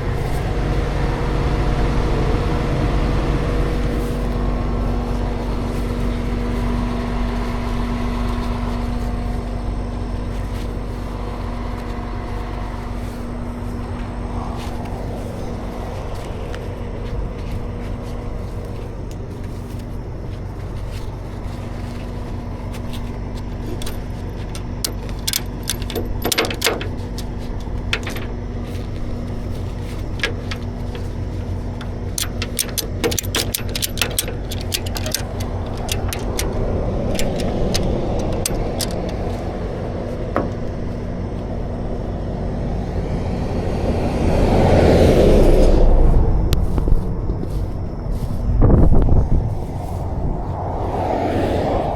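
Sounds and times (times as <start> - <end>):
truck engine idling: 0.0 - 50.8
vehicle passing on highway: 0.0 - 51.9
light metallic clicks and rattles: 20.6 - 41.6.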